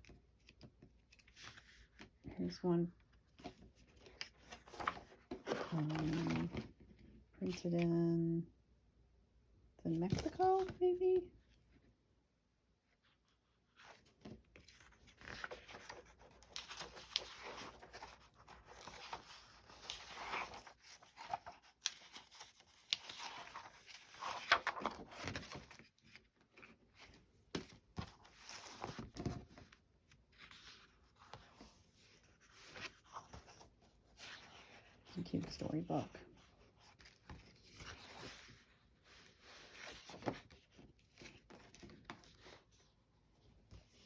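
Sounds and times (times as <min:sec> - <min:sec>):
paper rustling and crinkling: 0:03.3 - 0:06.8, 0:13.8 - 0:42.9.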